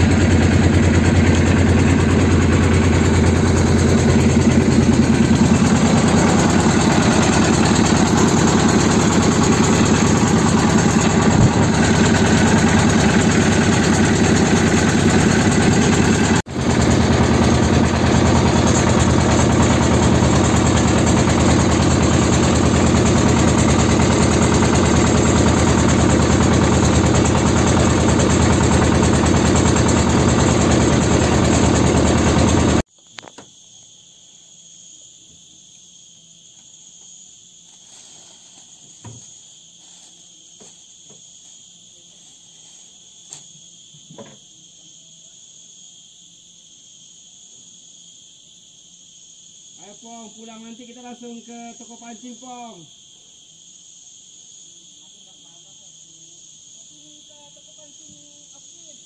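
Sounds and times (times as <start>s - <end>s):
insects chirring: 0.0s - 16.5s, 32.8s - 59.0s
motorboat engine running: 0.0s - 32.9s.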